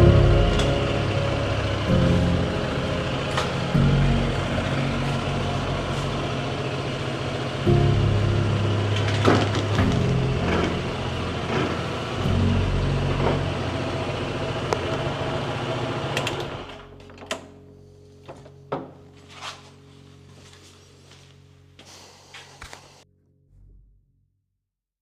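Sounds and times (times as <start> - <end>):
scooter engine running: 0.0 - 16.9.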